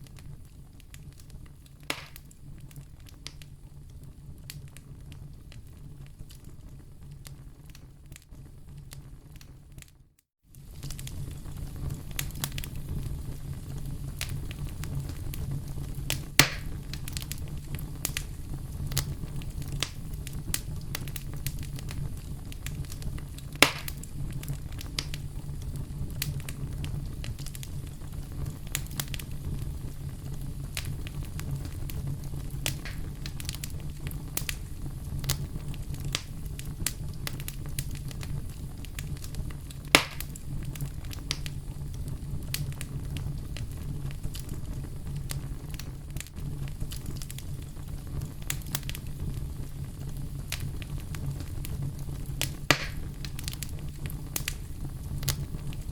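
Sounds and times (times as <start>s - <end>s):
campfire crackling: 0.0s - 9.9s, 10.5s - 55.9s
loud campfire pops: 0.0s - 9.9s, 10.5s - 55.9s.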